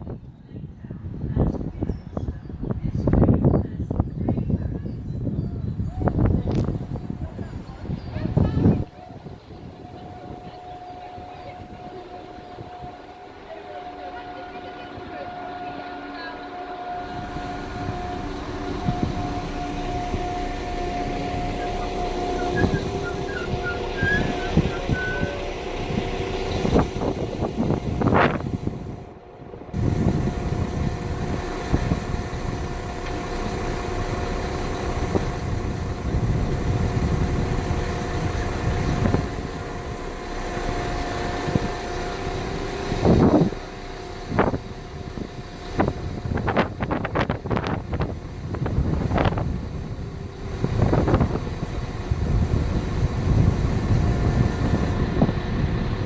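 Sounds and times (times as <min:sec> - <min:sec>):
train running drone: 0:00.0 - 0:56.0
train squeals: 0:03.2 - 0:29.0.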